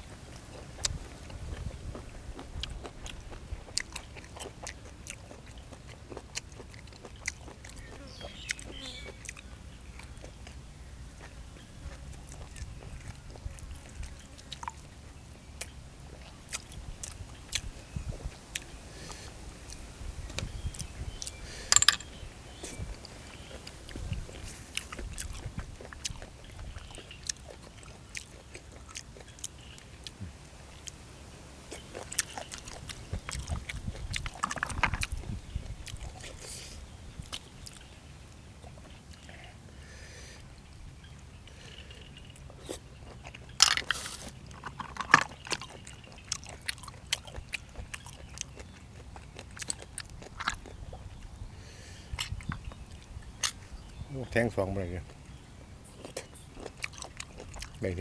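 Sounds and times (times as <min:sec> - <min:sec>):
person chewing and biting food: 0:00.0 - 0:10.6, 0:23.4 - 0:30.2, 0:31.7 - 0:37.8, 0:42.4 - 0:51.3, 0:52.1 - 0:53.6, 0:55.9 - 0:57.8
sharp food crunches: 0:31.7 - 0:37.8, 0:42.4 - 0:51.1, 0:53.4 - 0:53.6.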